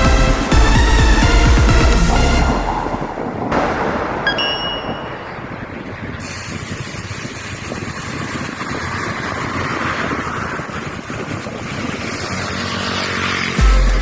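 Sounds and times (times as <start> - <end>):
road and traffic noise: 0.0 - 14.0
wind on microphone: 2.1 - 12.8.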